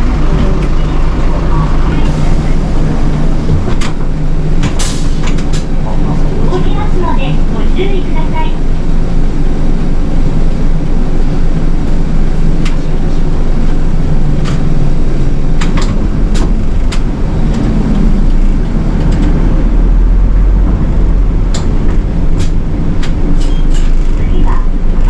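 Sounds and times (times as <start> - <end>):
bus engine rumble: 0.0 - 25.0
clicks and rattles in cabin: 15.6 - 17.7.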